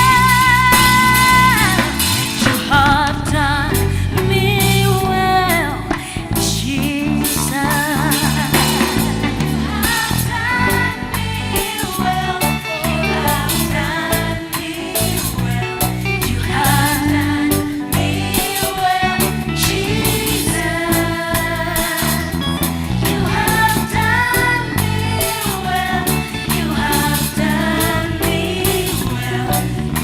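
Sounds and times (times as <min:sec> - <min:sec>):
person singing: 0:00.0 - 0:06.0, 0:09.8 - 0:22.4
bass: 0:00.0 - 0:30.0
drums: 0:00.0 - 0:30.0
guitar: 0:00.0 - 0:30.0.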